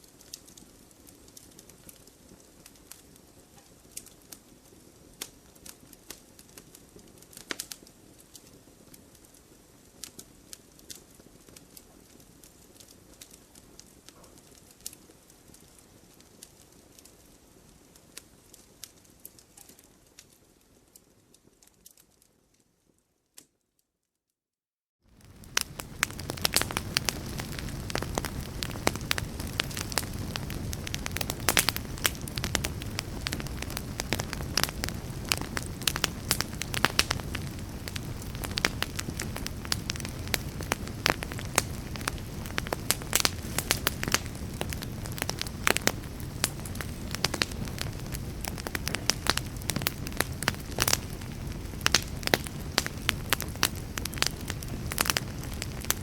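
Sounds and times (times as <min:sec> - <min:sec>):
wood fire crackling: 0:00.0 - 0:23.0, 0:25.1 - 0:56.0
low rumble of flames: 0:25.1 - 0:56.0.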